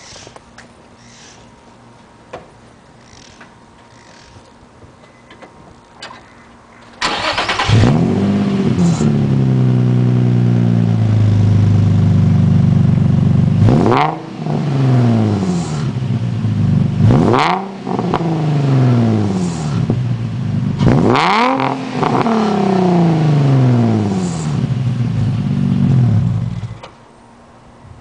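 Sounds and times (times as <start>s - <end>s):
car starter cranking: 7.0s - 8.2s
car engine idling and revving: 7.0s - 26.9s.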